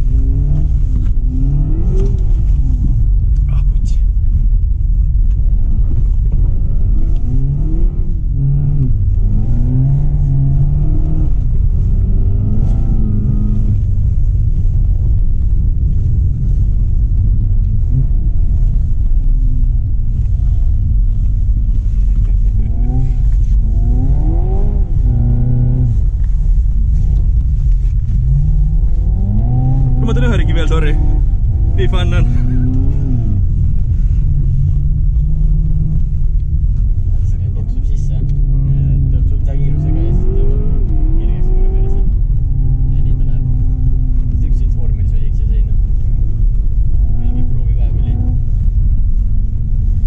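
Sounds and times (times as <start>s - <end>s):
car engine revving in cabin: 0.0s - 50.0s
steady low drone: 0.0s - 50.0s.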